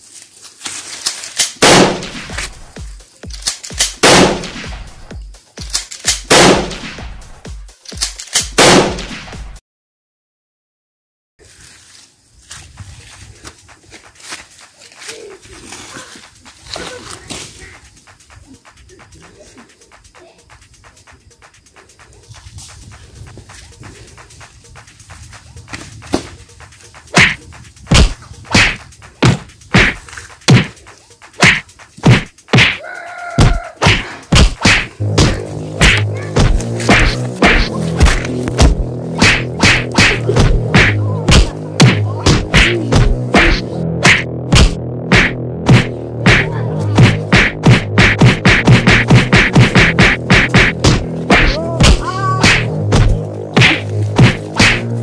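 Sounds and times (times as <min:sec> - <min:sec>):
echoing gunshots: 0:01.4 - 0:02.6, 0:03.3 - 0:05.0, 0:06.0 - 0:07.0, 0:08.3 - 0:09.4
sharp impact sound effects: 0:33.4 - 0:55.0.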